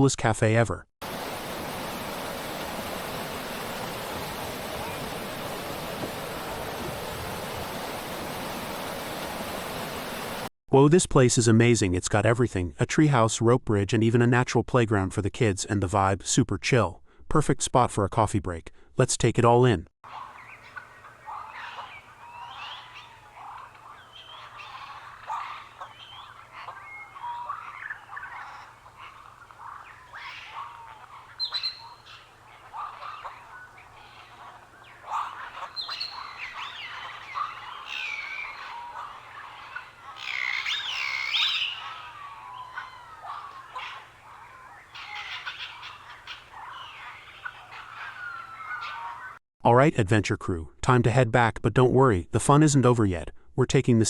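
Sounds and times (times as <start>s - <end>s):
birds chirping and calling: 1.1s - 10.4s, 20.1s - 49.4s.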